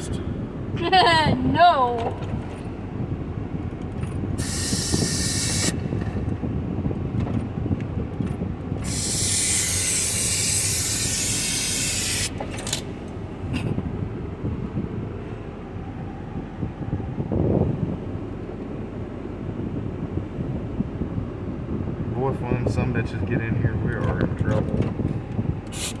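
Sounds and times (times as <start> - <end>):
aerosol spray can hissing: 4.4 - 5.9, 8.8 - 12.4, 25.7 - 26.0.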